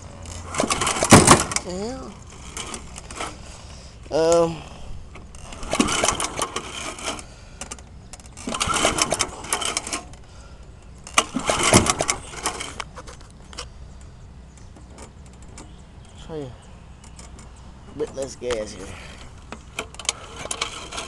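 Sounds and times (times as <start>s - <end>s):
lawnmower recoil starter cranking: 0.1s - 3.5s, 4.1s - 10.4s, 11.0s - 13.7s, 17.0s - 21.0s.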